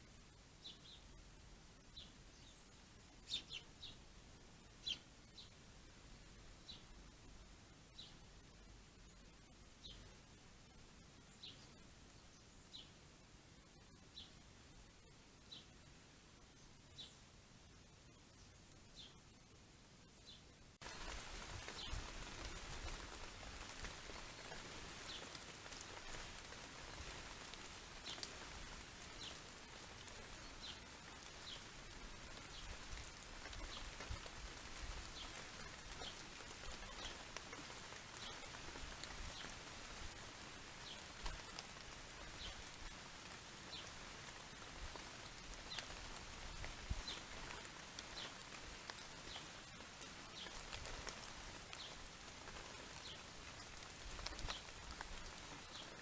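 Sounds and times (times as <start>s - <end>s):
steady outdoor hiss: 0.0s - 56.0s
small bird chirping: 0.6s - 1.2s, 1.8s - 4.1s, 4.8s - 5.6s, 7.9s - 8.2s, 9.0s - 10.2s, 11.2s - 13.0s, 16.6s - 17.2s, 18.1s - 19.3s, 20.1s - 22.0s, 29.1s - 34.2s, 35.1s - 38.6s
rain pattering: 20.7s - 56.0s.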